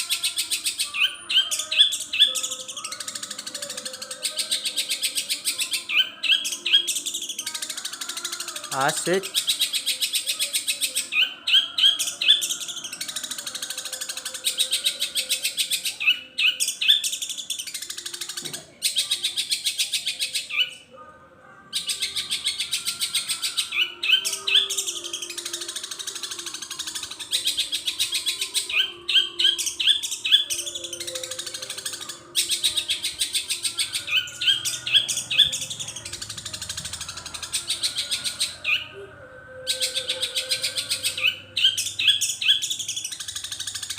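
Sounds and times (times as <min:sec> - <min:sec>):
shrike chattering song: 0:21.7 - 0:43.9.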